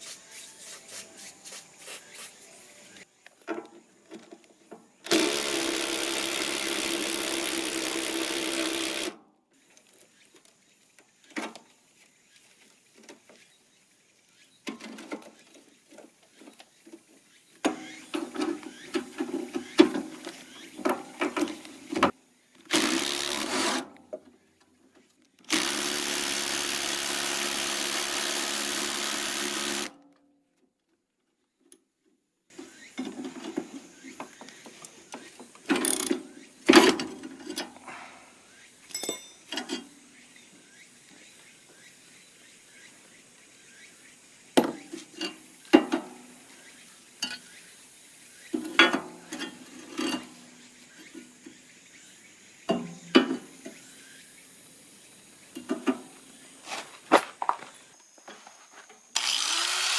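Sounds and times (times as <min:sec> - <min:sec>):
power drill motor whine: 0:05.0 - 0:09.1, 0:22.7 - 0:23.8, 0:25.5 - 0:29.9, 0:57.6 - 0:59.9.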